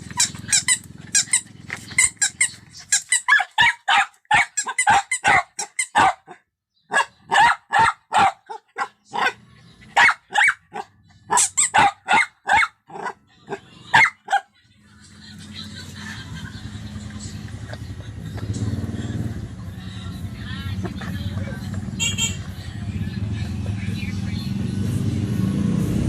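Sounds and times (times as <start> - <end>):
puppy yapping: 0.0 - 14.5.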